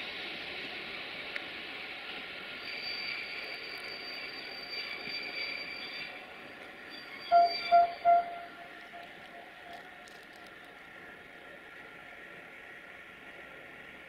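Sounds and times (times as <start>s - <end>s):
high steady whine: 0.0s - 14.0s
short loud beeps: 7.3s - 8.7s.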